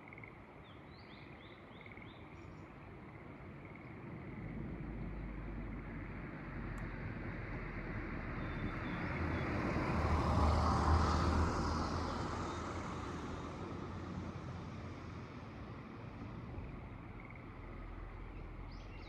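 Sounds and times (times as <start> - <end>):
engine passing by: 5.4 - 14.7.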